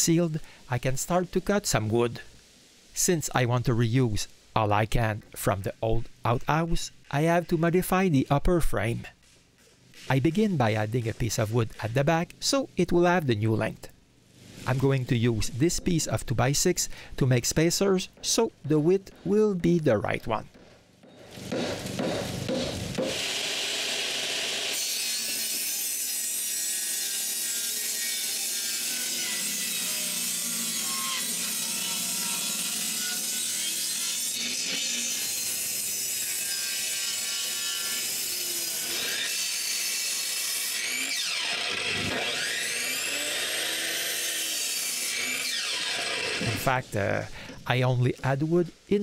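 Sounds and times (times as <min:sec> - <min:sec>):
power saw cutting wood: 0:21.3 - 0:46.8.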